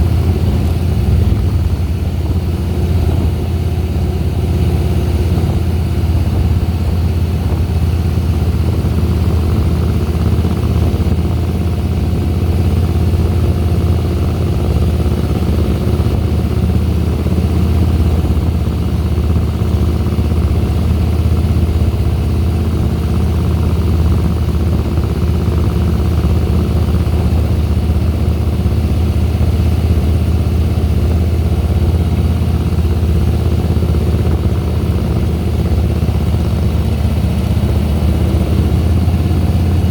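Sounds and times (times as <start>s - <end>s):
motorcycle engine low rumble: 0.0s - 39.9s.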